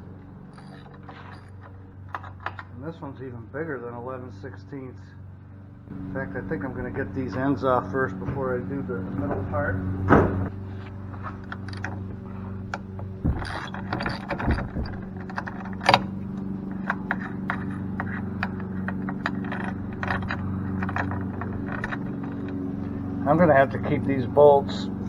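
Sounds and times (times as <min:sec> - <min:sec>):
steady low hum: 0:00.0 - 0:25.0
metal tools clinking: 0:00.4 - 0:02.8, 0:10.5 - 0:24.2
sharp knocks: 0:09.2 - 0:10.6, 0:11.8 - 0:16.2.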